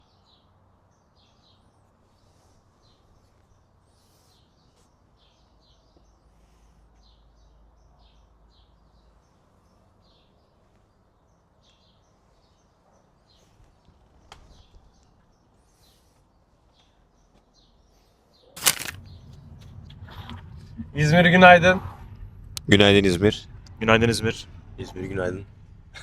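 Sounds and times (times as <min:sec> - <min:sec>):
small birds chirping: 0:00.0 - 0:26.0
low steady hiss: 0:18.6 - 0:26.0.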